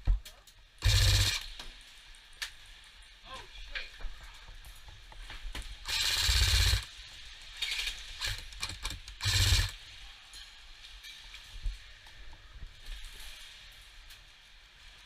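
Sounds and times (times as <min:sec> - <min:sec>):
airsoft gun firing bursts: 0:00.8 - 0:01.5, 0:05.8 - 0:06.9, 0:07.7 - 0:09.8.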